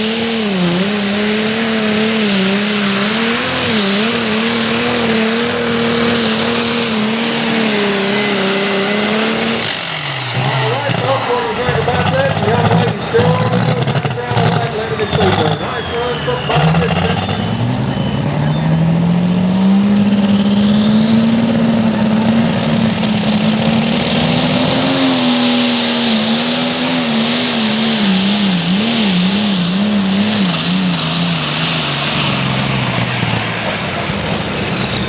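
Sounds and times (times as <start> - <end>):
diesel engine running at full power: 0.0 - 35.0
high turbo whine: 0.0 - 35.0.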